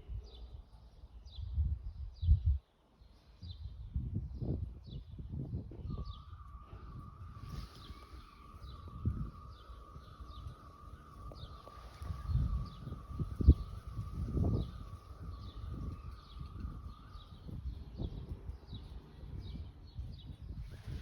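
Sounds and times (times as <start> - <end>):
birds chirping: 0.0 - 21.0
wavering high tone: 6.1 - 18.2.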